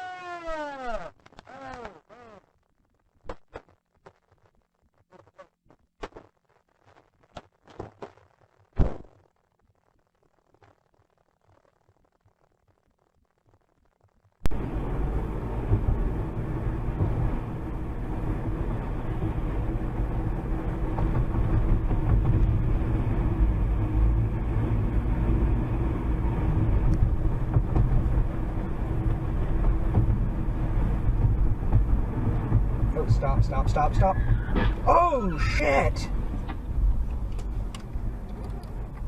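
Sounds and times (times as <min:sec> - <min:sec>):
vehicle running with road noise: 0:14.5 - 0:39.0.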